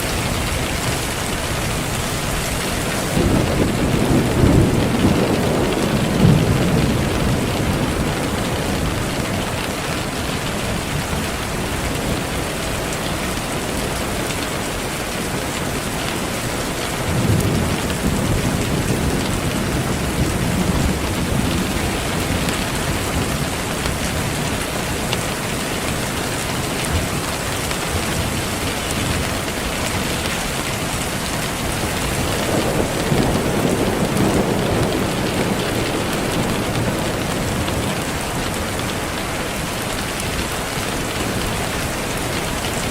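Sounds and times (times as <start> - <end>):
steady rain hissing: 0.0 - 42.9
low rolls of thunder: 0.3 - 12.4, 16.9 - 25.1, 30.3 - 40.0.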